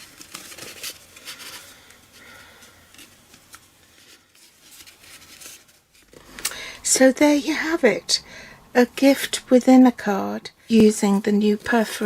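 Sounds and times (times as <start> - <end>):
paper and ribbon rustling: 0.0 - 6.4, 10.7 - 12.0.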